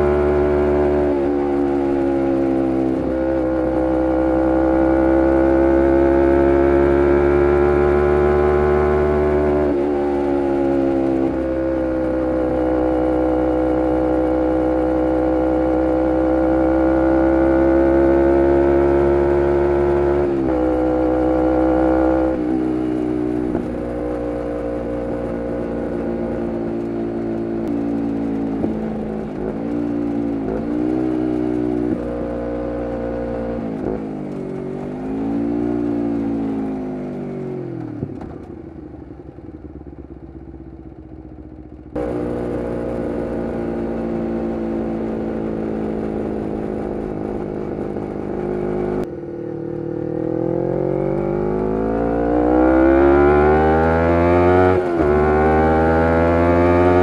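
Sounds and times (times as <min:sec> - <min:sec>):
motorcycle engine revving: 0:00.0 - 0:57.0
gear change: 0:17.6 - 0:38.8.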